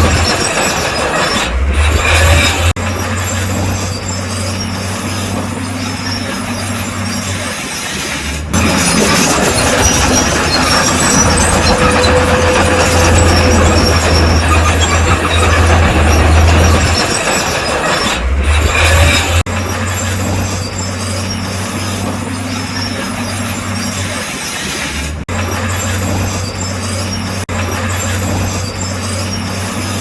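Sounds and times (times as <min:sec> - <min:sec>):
bulldozer diesel engine: 0:00.0 - 0:30.0
steel tracks clanking: 0:00.0 - 0:30.0.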